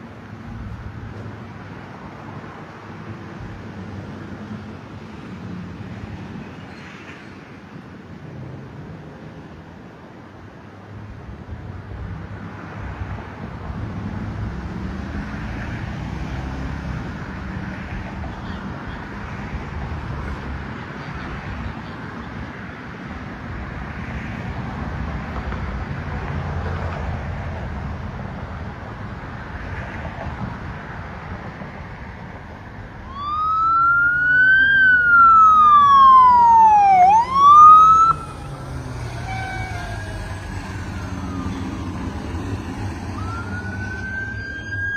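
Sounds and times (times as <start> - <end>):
traffic rumble: 0.0 - 44.9
emergency vehicle siren: 33.0 - 44.9
faint distant siren: 33.0 - 44.9.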